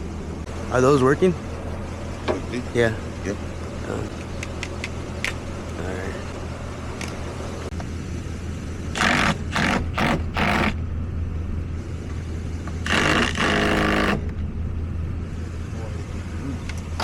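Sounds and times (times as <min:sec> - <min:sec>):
vehicle engine running: 0:00.0 - 0:17.0
loud mechanical bursts: 0:08.9 - 0:10.9, 0:12.8 - 0:14.4.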